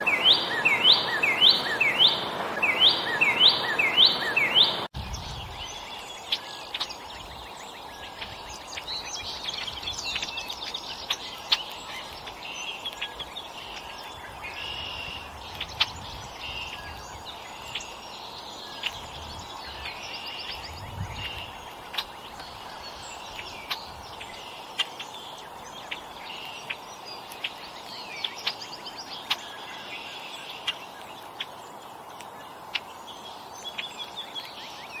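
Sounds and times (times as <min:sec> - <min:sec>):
loud repeating bird call: 0:00.0 - 0:04.9
outdoor hiss: 0:00.0 - 0:04.9
songbirds chirping: 0:00.0 - 0:35.0.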